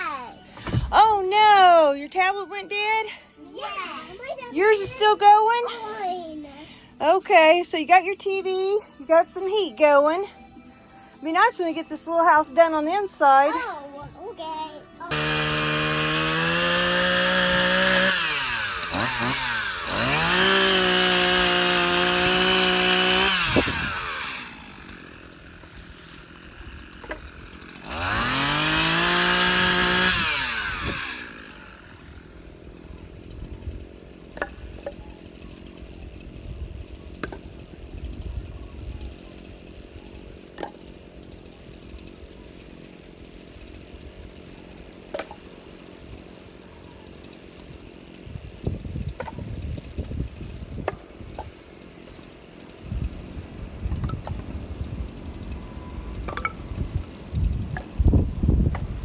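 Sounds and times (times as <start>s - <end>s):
small engine revving: 15.1s - 32.4s.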